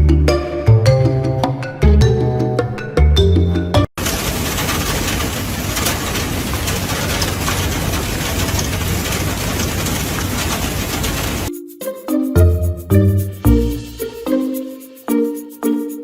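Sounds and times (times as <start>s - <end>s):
background music: 0.0s - 3.9s, 11.5s - 16.0s.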